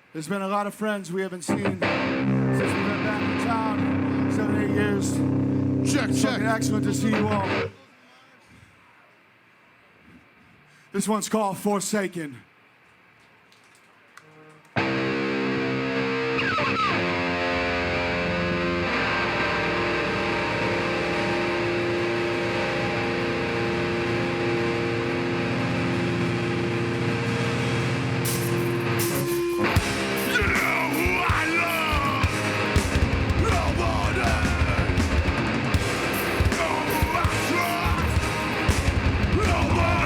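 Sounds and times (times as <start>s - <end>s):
distorted electric guitar chords: 1.5s - 7.7s, 14.8s - 40.0s
drums and cymbals: 27.2s - 40.0s.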